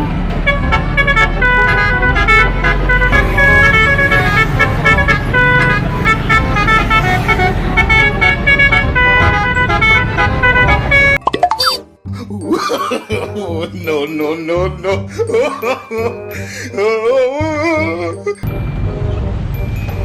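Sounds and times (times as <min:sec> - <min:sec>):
multi-tone bus air horn melody: 0:00.3 - 0:11.2.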